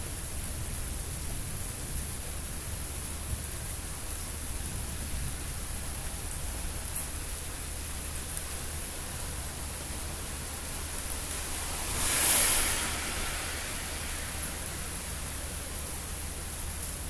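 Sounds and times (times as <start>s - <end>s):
rain hissing: 0.2s - 17.0s
brief whoosh: 11.3s - 14.6s.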